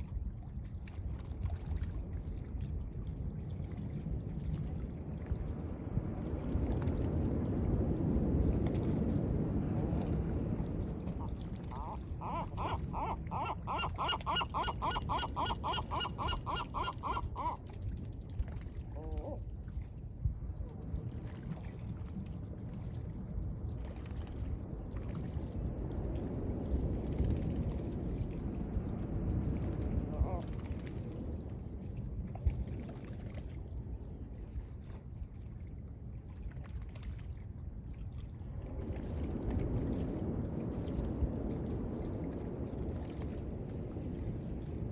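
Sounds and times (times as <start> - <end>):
waves washing on beach: 4.0 - 32.8
gull calling: 11.2 - 17.6.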